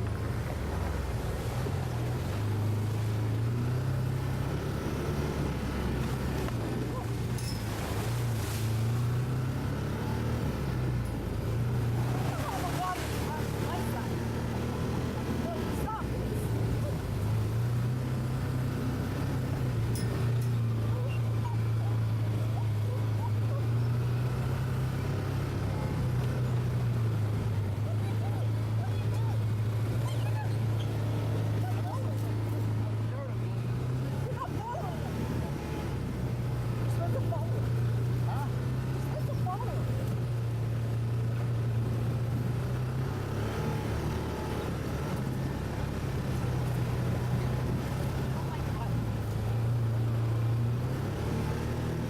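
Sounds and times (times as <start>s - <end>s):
atv engine droning: 0.0s - 52.0s.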